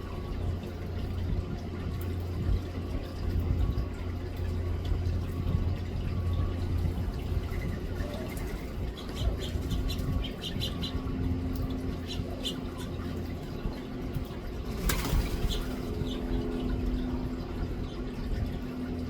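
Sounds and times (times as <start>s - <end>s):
finches chirping: 8.9s - 11.1s.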